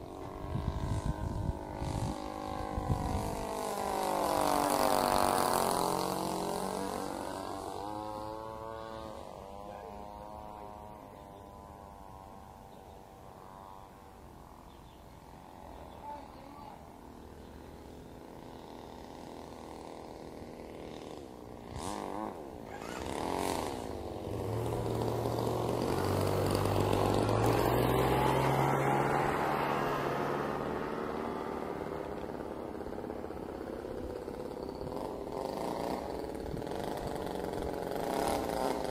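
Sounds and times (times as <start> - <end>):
model airplane motor whine: 0.0 - 38.9.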